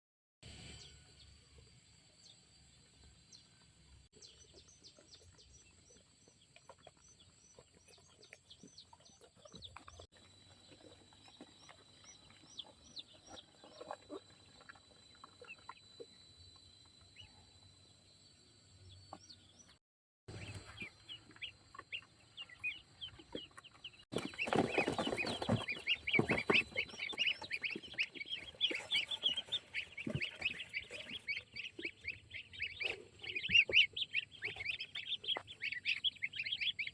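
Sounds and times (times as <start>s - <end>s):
chickens clucking: 4.2s - 16.1s, 20.3s - 36.9s.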